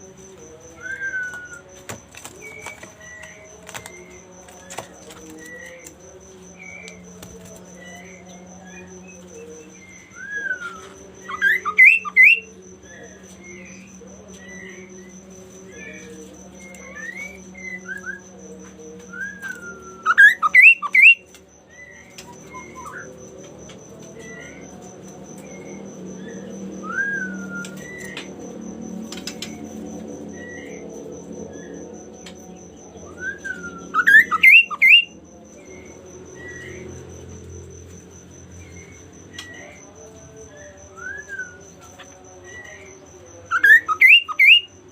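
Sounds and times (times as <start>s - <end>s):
songbird singing: 0.0s - 44.9s
songbird whistling: 10.0s - 12.5s, 19.1s - 23.1s, 26.8s - 28.3s, 33.1s - 35.2s, 43.5s - 44.7s.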